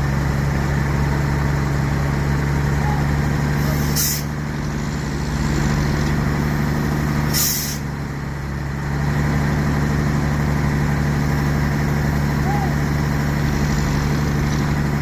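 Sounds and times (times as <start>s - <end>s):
heavy truck engine running: 0.0s - 15.0s
compressed air hiss: 3.7s - 4.3s, 7.3s - 7.8s.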